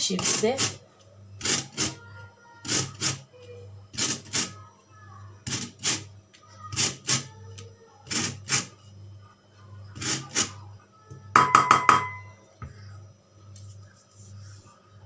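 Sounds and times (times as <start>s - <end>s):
peel rasping on grater: 0.1s - 0.8s, 1.4s - 2.0s, 2.6s - 3.2s, 3.9s - 4.6s, 5.4s - 6.1s, 6.7s - 7.3s, 8.0s - 8.7s.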